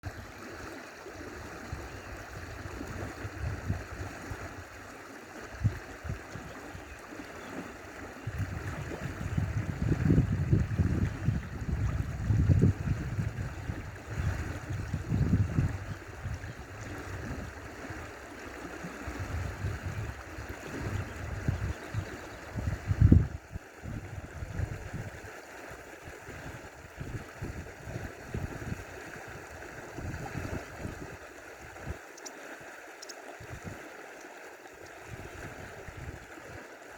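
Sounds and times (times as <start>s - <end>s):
stream water running: 0.0s - 36.9s.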